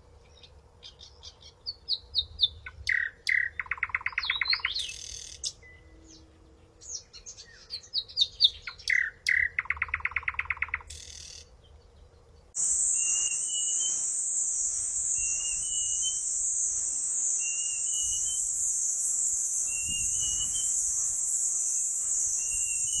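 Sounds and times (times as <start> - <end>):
songbirds chirping: 0.0 - 23.0
loud high-pitched hiss: 12.6 - 23.0
short rising chirp: 12.6 - 23.0.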